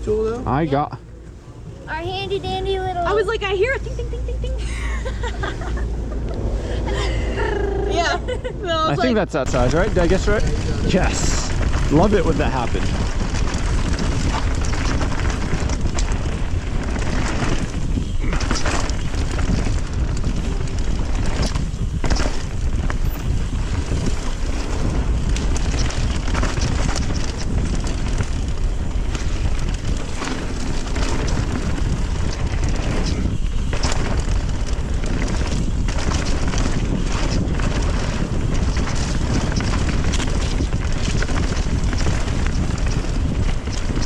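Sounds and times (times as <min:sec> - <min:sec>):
wind buffeting microphone: 0:00.0 - 0:44.0
mountain bike rumbling on trail: 0:01.6 - 0:44.0
sharp clicks and rattles: 0:09.1 - 0:44.0.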